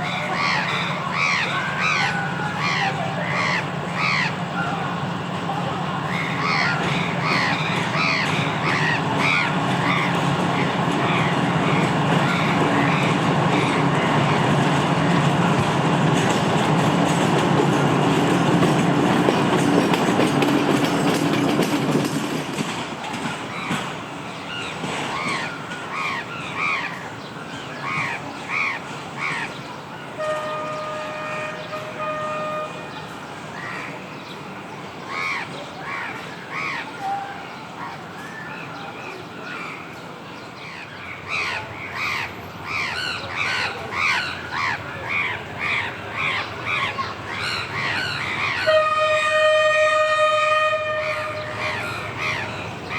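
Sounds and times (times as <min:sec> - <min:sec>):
diesel train passing: 0:00.0 - 0:52.9
crows cawing: 0:00.2 - 0:04.4, 0:06.1 - 0:13.9
distant train horn: 0:30.1 - 0:33.3, 0:47.4 - 0:52.4.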